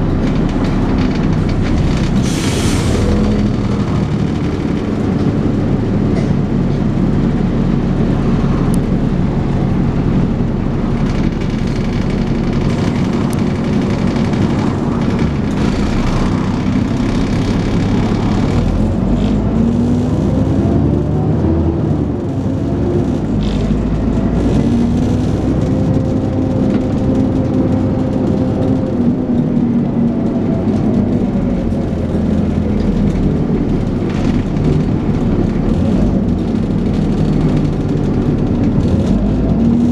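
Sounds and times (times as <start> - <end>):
bus body rattles: 0.0 - 39.9
bus diesel engine accelerating: 0.0 - 39.9
engine whine: 0.0 - 39.9.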